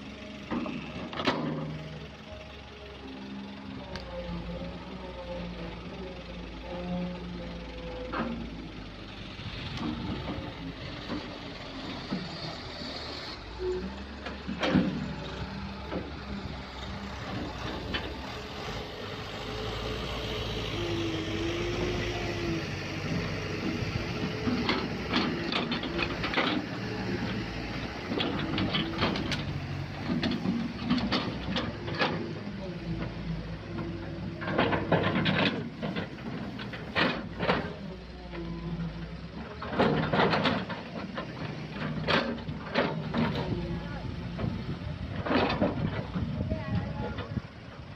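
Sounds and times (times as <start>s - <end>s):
excavator diesel engine running: 0.0s - 47.9s
metal clanks and knocks: 14.2s - 16.3s, 23.1s - 32.4s, 33.0s - 37.9s, 39.4s - 47.4s.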